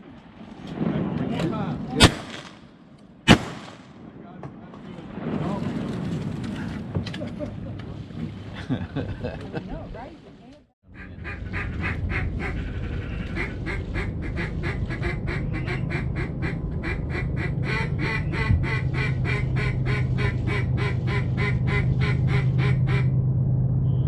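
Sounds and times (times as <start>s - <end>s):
duck quacking: 10.9s - 23.1s
steady low hum: 10.9s - 24.0s.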